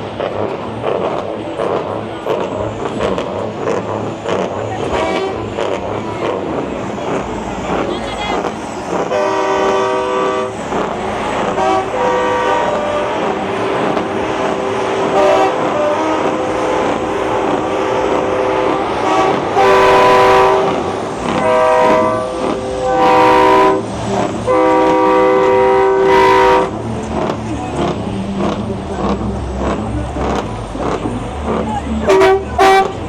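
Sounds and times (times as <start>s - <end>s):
truck air horns blasting: 4.8s - 5.6s, 7.9s - 10.6s, 11.4s - 26.8s, 32.0s - 33.0s.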